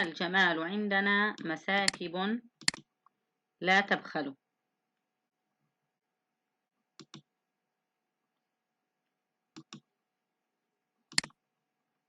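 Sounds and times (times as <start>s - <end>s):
sharp clicks: 1.3s - 2.9s.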